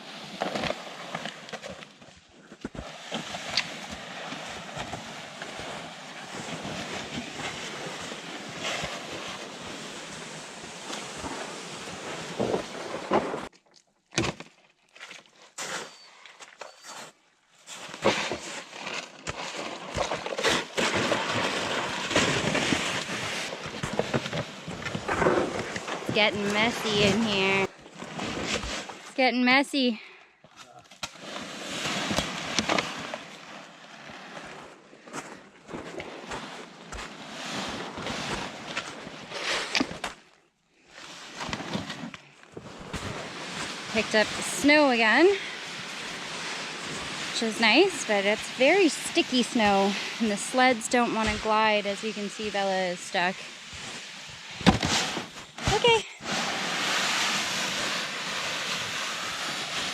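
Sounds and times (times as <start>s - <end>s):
sleds scraping through slush: 2.8s - 13.5s, 17.7s - 29.9s, 31.1s - 40.0s, 41.0s - 59.9s
brush crackling: 18.4s - 29.0s, 42.8s - 59.9s.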